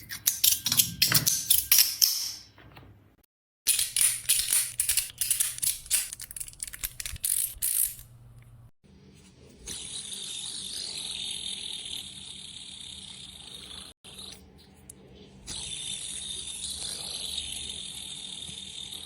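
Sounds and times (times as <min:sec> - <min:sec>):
metal fidget toy clicking: 0:03.7 - 0:08.0.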